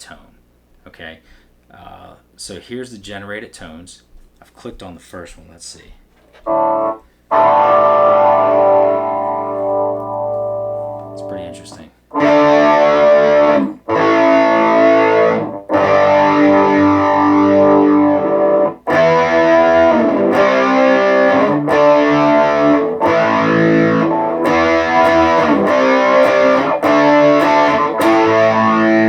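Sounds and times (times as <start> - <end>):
distorted electric guitar chords: 6.4 - 29.0.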